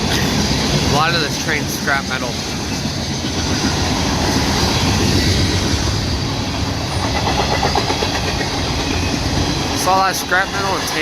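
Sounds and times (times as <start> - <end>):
freight train wheels clattering on rail: 0.0 - 11.0.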